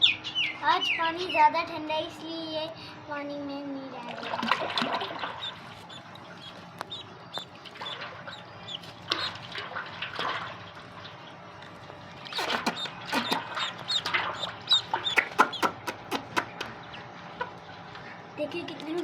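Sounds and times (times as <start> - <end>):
ducklings and chicks peeping: 4.8 - 18.3.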